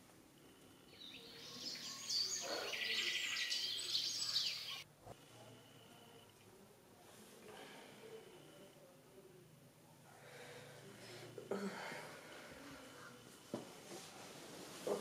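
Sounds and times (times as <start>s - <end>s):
birds chirping and trilling: 0.9s - 4.8s.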